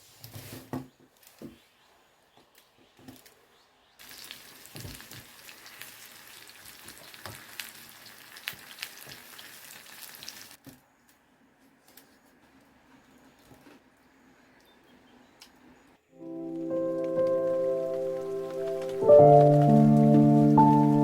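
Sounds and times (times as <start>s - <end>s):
food sizzling in a pan: 4.0s - 10.6s.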